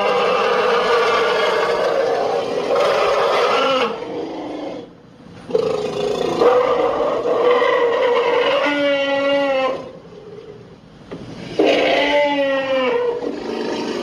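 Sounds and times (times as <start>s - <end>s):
long low creature call: 5.5s - 10.6s, 11.5s - 14.0s.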